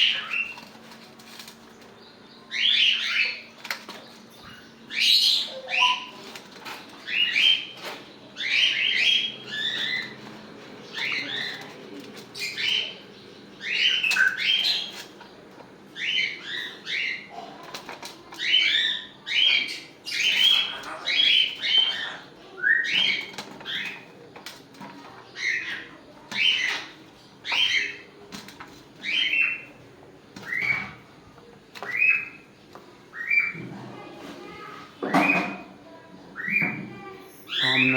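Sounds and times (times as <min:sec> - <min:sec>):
parrot calling: 0:18.4 - 0:24.0.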